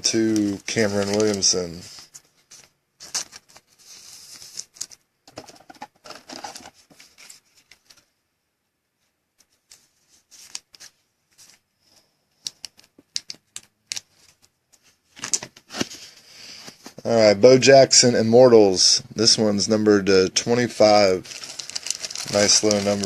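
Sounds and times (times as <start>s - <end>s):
cards rustling and sliding: 0.2s - 8.1s, 9.4s - 11.6s, 12.4s - 17.0s, 20.8s - 23.0s.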